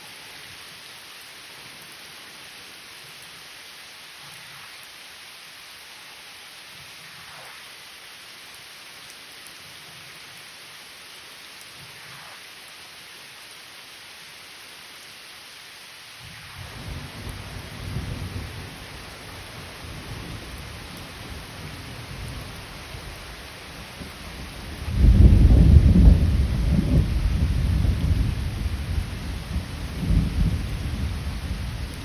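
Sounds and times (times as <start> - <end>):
steady rain falling: 0.0 - 32.0
thunder rumbling: 16.4 - 32.0.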